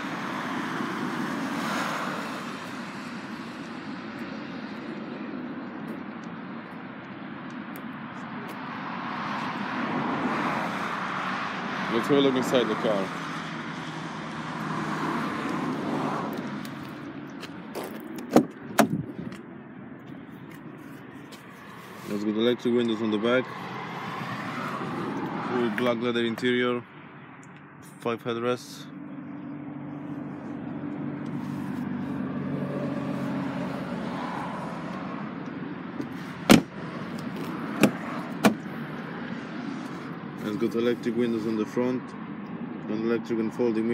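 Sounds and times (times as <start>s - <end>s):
traffic noise: 0.0s - 43.9s
car door latch clicks: 18.2s - 19.4s, 36.0s - 36.7s, 37.3s - 38.6s.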